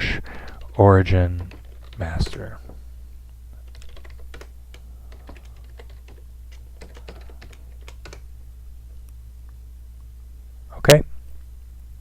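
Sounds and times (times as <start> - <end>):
low electrical hum: 0.0 - 12.0
typing on a keyboard: 1.4 - 2.0, 3.7 - 8.2.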